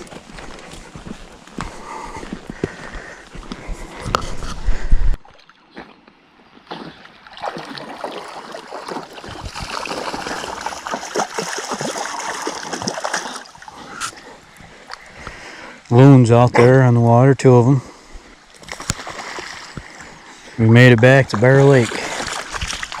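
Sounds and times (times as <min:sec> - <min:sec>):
footsteps on a trail: 0:00.0 - 0:06.7
water splashing and trickling: 0:05.2 - 0:15.2, 0:18.4 - 0:23.0.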